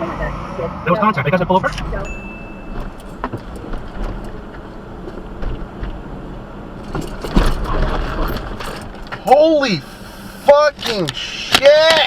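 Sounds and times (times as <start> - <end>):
car road noise: 0.0 - 12.0.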